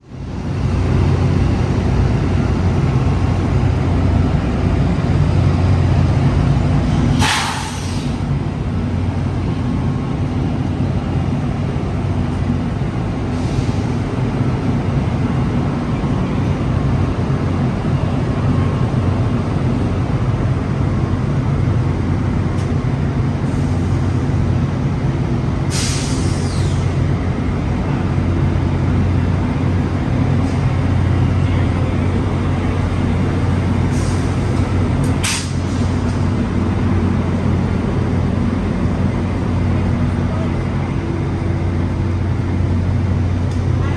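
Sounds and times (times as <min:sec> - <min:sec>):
locomotive low hum: 0:00.0 - 0:43.9
air hissing: 0:07.0 - 0:08.3, 0:25.7 - 0:27.0, 0:33.8 - 0:36.4.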